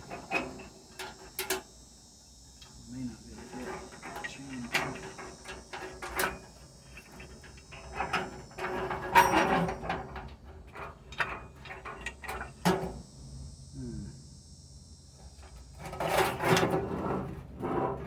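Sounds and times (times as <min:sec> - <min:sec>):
scraping rattle: 0:03.3 - 0:12.9, 0:15.4 - 0:18.0.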